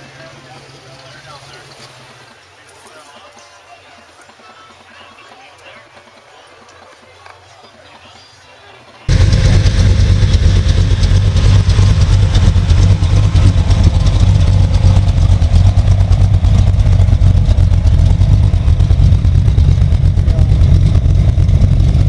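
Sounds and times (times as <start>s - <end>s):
pickup truck engine running: 9.1s - 22.0s.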